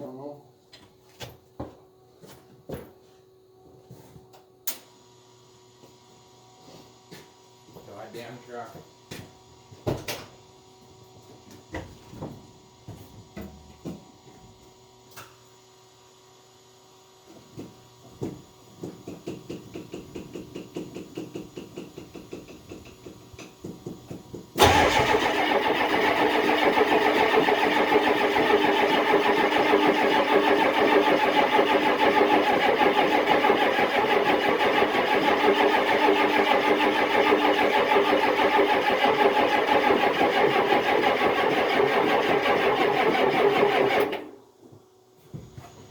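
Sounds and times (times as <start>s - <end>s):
starter cranking engine: 24.6s - 44.3s.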